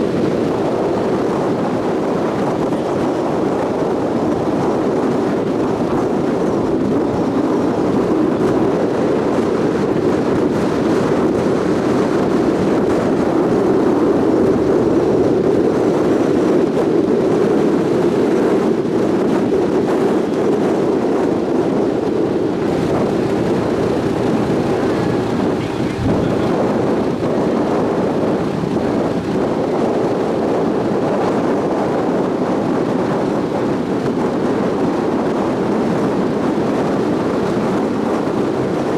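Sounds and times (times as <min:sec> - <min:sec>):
water rushing along hull: 0:00.0 - 0:38.9
ship engines droning: 0:21.2 - 0:30.7.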